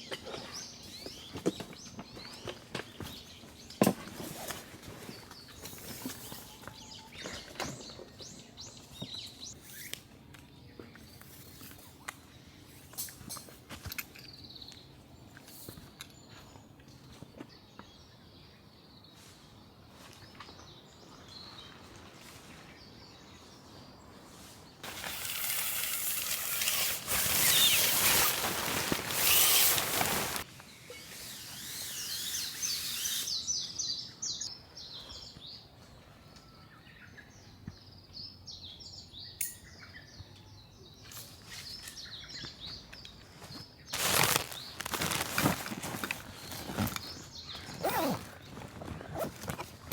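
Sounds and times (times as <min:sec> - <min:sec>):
small birds chirping: 0:00.0 - 0:13.5, 0:27.2 - 0:49.9.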